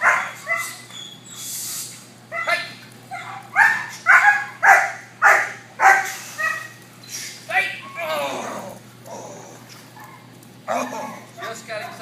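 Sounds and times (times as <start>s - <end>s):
puppy barking: 0.0s - 0.8s, 2.3s - 6.8s.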